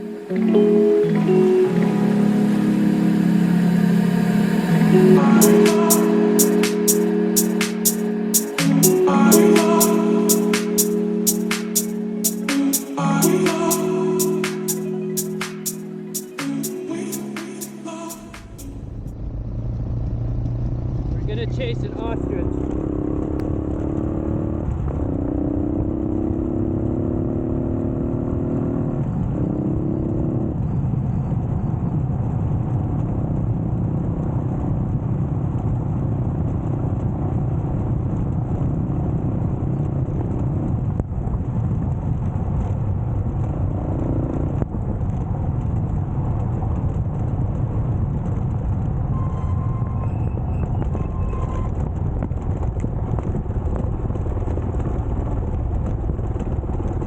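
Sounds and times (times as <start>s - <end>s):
wind and tyre rumble: 50.0s - 57.0s.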